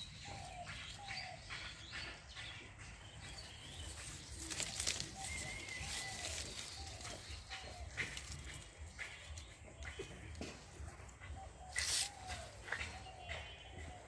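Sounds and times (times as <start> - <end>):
birds calling: 0.0 - 14.0
leaves and branches rustling: 3.4 - 10.8, 11.6 - 13.4.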